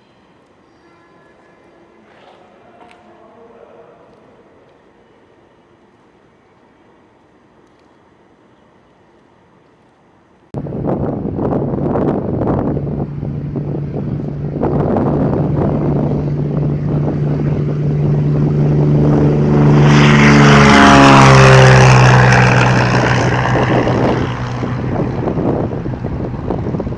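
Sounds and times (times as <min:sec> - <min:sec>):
propeller plane passing by: 0:10.6 - 0:26.9.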